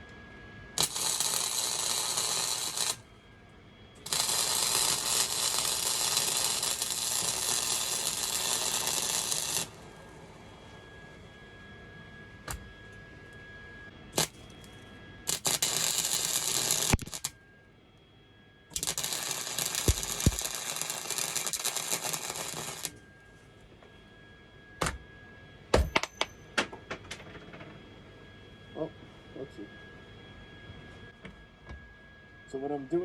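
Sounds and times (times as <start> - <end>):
welder arc crackling: 0.8 - 3.0, 4.1 - 9.8, 15.3 - 17.3, 18.7 - 22.9.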